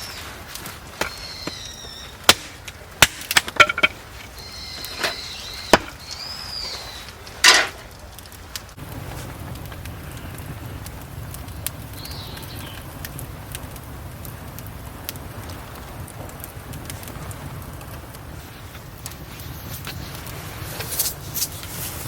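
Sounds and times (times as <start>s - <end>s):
wood being chopped: 2.3s - 4.0s, 5.0s - 6.0s.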